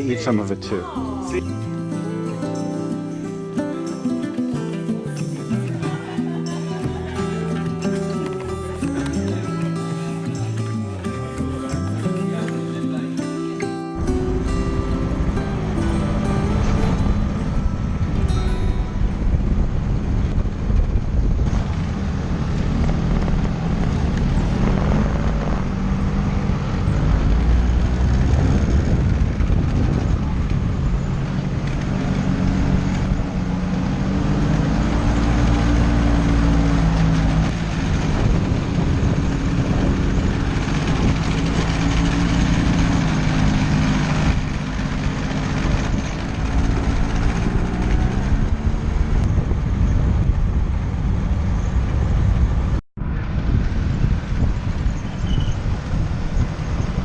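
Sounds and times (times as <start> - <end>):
motor scooter engine running: 14.0 - 21.8, 37.2 - 50.6
low rumble: 14.0 - 57.0
wind noise on microphone: 14.0 - 57.0.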